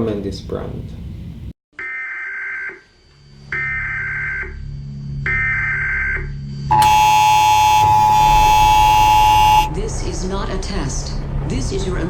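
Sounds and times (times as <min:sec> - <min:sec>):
buzzing data tones: 0:06.7 - 0:09.7
harsh attention tone: 0:06.7 - 0:09.8
low hum: 0:06.7 - 0:12.0.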